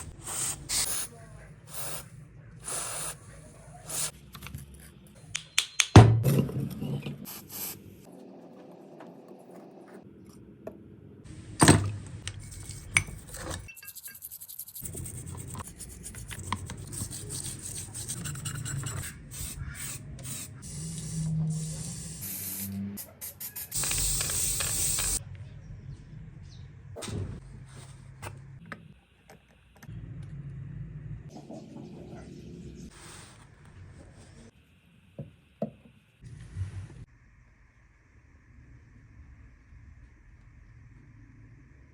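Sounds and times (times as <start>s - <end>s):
spray hiss: 1.7s - 2.0s, 2.6s - 3.2s, 19.3s - 25.2s
filing and scraping metal: 12.4s - 20.6s.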